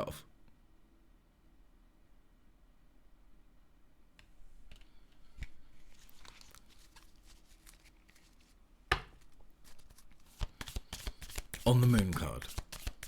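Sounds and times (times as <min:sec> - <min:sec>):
cards clicking and rustling on table: 0:04.2 - 0:13.0
sharp tap on table: 0:08.9 - 0:09.2.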